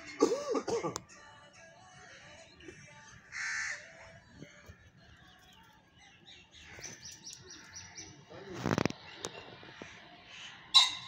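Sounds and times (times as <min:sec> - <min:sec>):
bird harsh call: 0:09.7 - 0:11.0.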